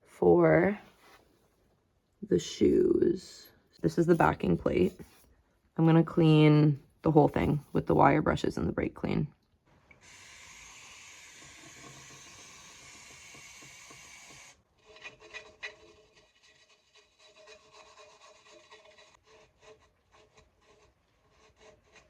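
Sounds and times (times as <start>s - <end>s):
wire brush scrubbing metal: 14.8s - 22.0s.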